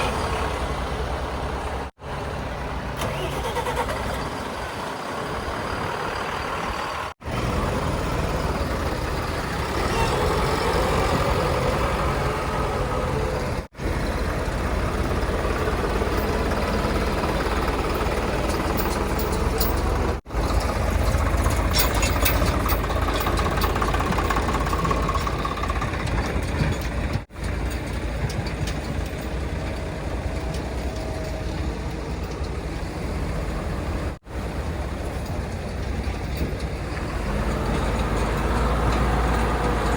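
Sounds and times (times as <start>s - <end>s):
diesel machinery engines running: 0.0s - 39.9s
light metal clanks: 16.1s - 32.9s, 34.9s - 39.9s.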